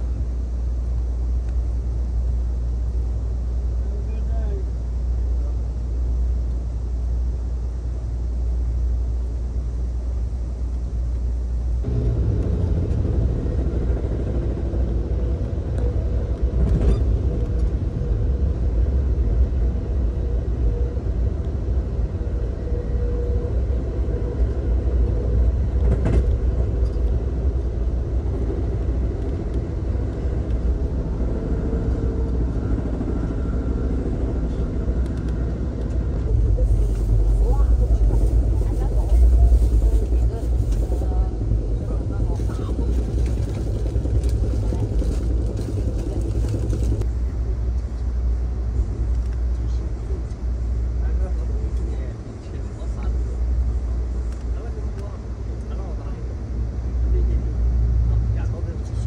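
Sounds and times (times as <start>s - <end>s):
train interior rumble: 0.0s - 59.0s.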